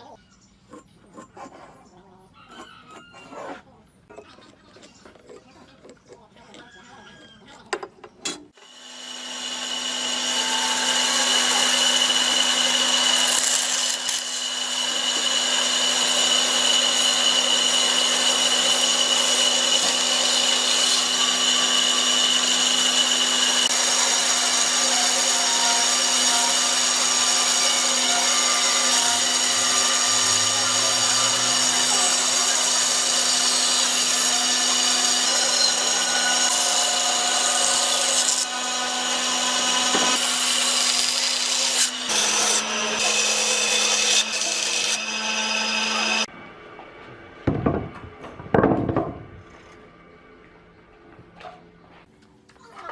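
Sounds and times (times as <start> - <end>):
power tool grinding wood: 8.5 - 46.3.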